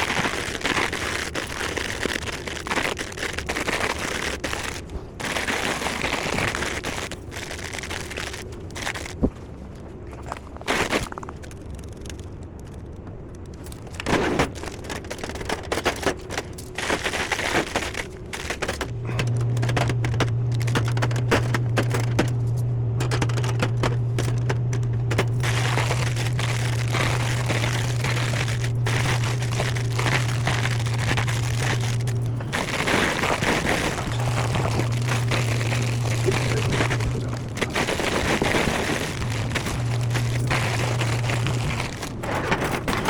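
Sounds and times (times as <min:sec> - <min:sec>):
snack packages crinkling: 0:00.0 - 0:43.0
loud low hum: 0:09.8 - 0:43.0.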